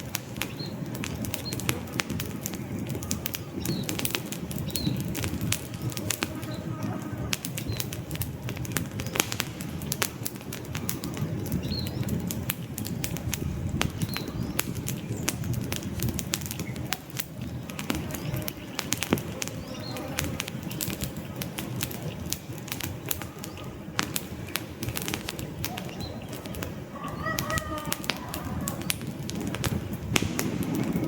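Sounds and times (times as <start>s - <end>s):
campfire crackling and popping: 0.0s - 31.0s
low rush of flames: 0.0s - 31.0s.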